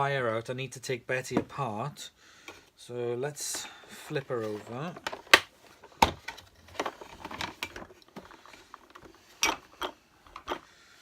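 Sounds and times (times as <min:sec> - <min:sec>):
hard plastic knocks and clatter: 0:04.5 - 0:10.6.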